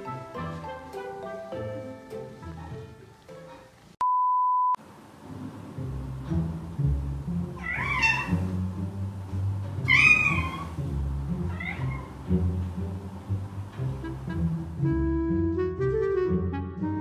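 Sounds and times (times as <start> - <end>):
soft background music: 0.0 - 3.9, 5.3 - 17.0
cat meowing: 7.6 - 8.5, 9.8 - 10.8, 11.5 - 12.1.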